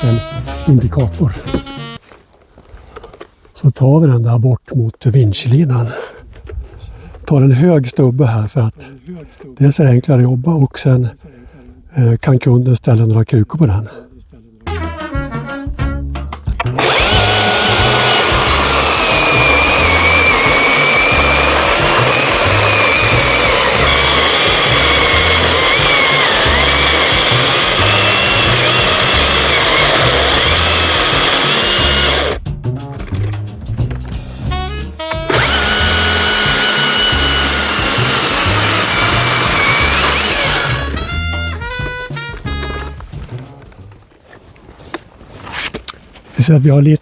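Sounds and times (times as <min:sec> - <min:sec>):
battery chainsaw cutting wood: 0:00.0 - 0:00.2, 0:16.6 - 0:32.4, 0:35.1 - 0:41.5.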